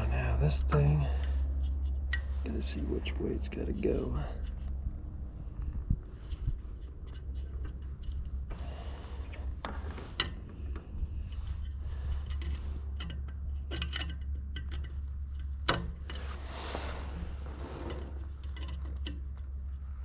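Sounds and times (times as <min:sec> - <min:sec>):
steady low hum: 0:00.0 - 0:20.0
small clicks and taps of handling: 0:12.3 - 0:16.2, 0:18.4 - 0:19.6.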